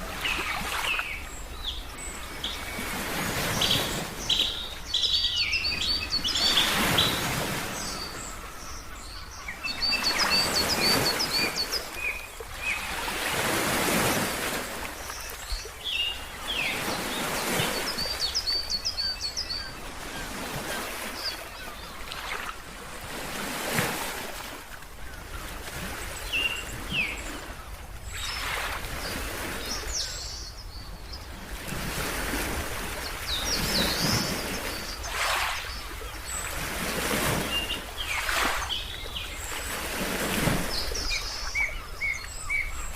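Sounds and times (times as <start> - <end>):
ocean waves washing: 0.0 - 30.4, 31.1 - 42.9
birds chirping: 0.2 - 22.5, 33.0 - 42.9.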